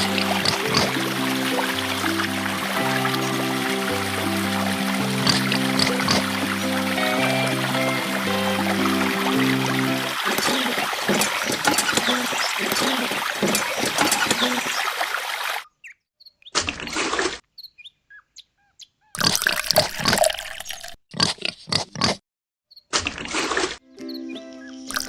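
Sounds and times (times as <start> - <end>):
music: 0.0 - 10.7, 23.8 - 25.0
water pouring and splashing: 0.0 - 15.6, 19.2 - 21.0.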